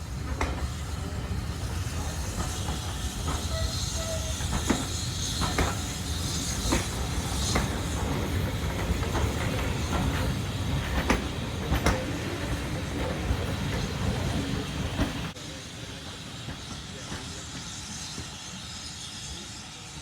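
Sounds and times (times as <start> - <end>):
train rumbling on track: 0.0 - 20.0
wheels clicking over rail joints: 0.2 - 15.4.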